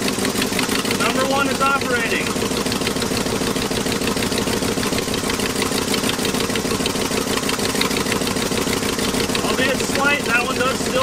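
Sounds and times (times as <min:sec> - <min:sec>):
engine idling with a miss: 0:00.0 - 0:11.0.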